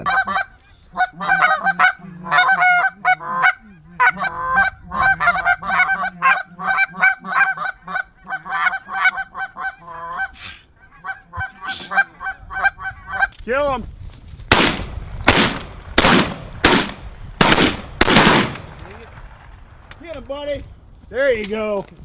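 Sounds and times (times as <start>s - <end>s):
geese honking: 0.0s - 13.4s.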